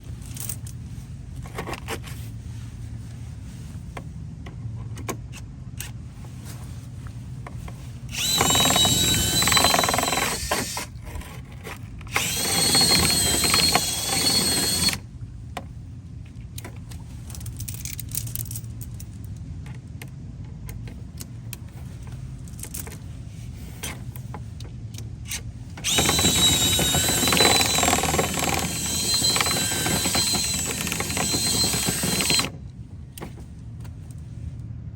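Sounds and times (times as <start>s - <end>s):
power drill whining: 8.1s - 10.9s, 12.1s - 15.0s, 25.8s - 32.5s.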